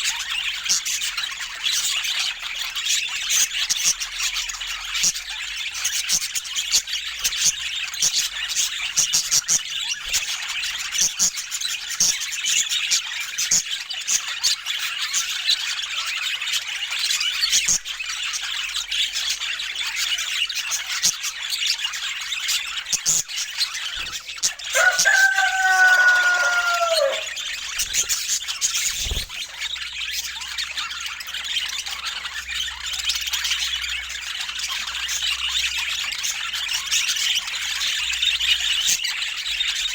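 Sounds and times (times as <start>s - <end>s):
budgerigars chattering: 0.0s - 39.9s
long low bird call: 24.6s - 27.5s.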